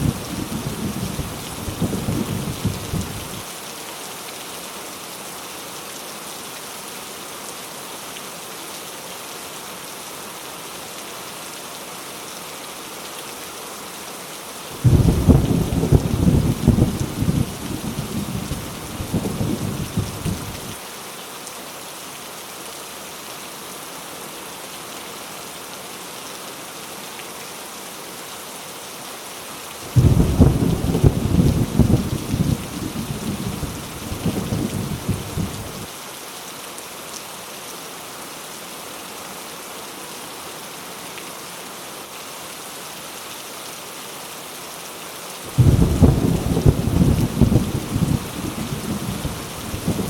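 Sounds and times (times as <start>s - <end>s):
thunder rumbling: 0.0s - 3.4s, 14.8s - 20.8s, 29.9s - 35.9s, 45.5s - 50.0s
heavy rain: 0.0s - 50.0s
loud thunderclap: 14.8s - 18.4s, 29.9s - 35.9s, 45.6s - 50.0s.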